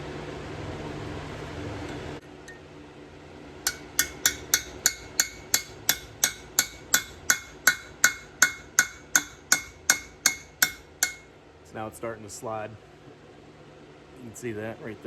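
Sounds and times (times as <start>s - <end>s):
hammer striking metal chisel: 3.7s - 11.3s.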